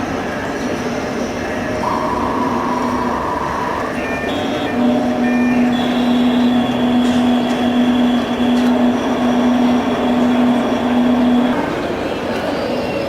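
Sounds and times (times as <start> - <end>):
low machine hum: 1.8 - 4.0
faint high whine: 1.8 - 4.9.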